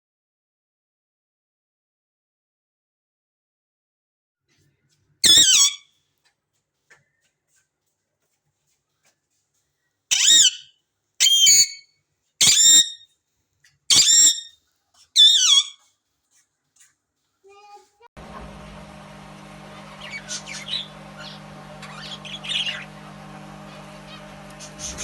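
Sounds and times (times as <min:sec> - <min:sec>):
parrot screeching: 0:05.2 - 0:05.8, 0:10.1 - 0:11.8, 0:12.4 - 0:13.0, 0:13.9 - 0:14.5, 0:15.2 - 0:15.8.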